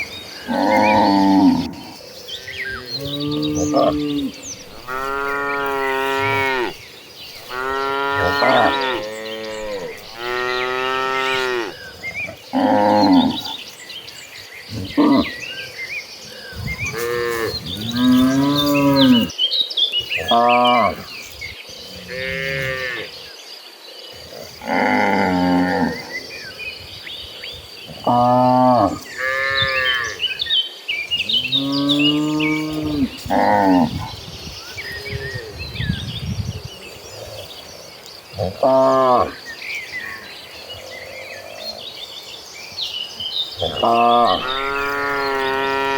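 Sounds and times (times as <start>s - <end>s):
small birds chirping: 0.0s - 45.9s
cattle mooing: 0.5s - 1.9s, 2.7s - 6.8s, 7.4s - 11.8s, 43.6s - 45.9s.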